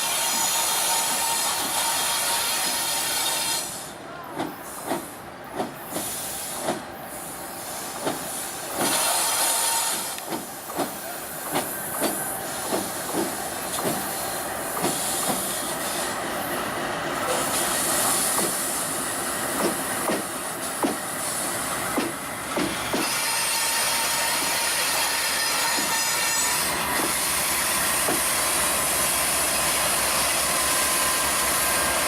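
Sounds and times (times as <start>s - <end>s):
train wheels clacking over rail joints: 0.0s - 3.4s, 4.3s - 6.9s, 8.0s - 16.0s, 17.3s - 18.8s, 19.5s - 21.2s, 21.9s - 28.4s.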